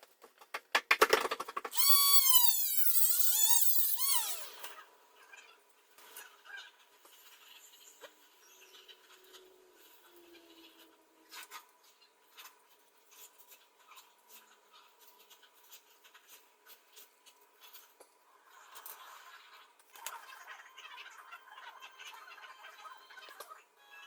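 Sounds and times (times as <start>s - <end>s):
hand scraping and rubbing: 1.7s - 4.7s.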